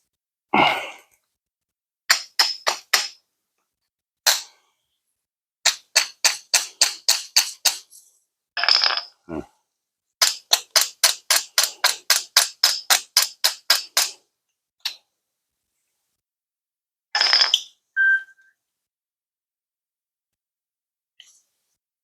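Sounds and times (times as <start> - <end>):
hammer tapping sheet metal: 5.7 - 7.9, 10.2 - 14.2.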